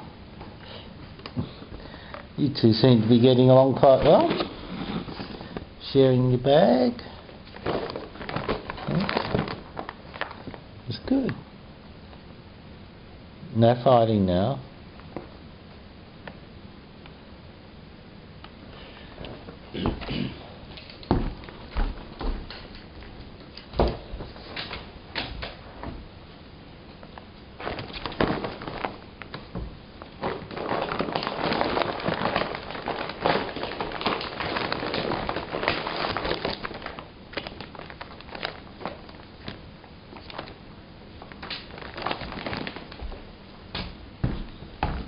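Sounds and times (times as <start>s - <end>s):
paper bag crinkling and rustling: 2.5s - 6.0s, 7.5s - 10.7s, 27.6s - 40.6s, 41.2s - 43.3s
sharp crackles and knocks: 27.0s - 40.6s, 41.2s - 45.0s.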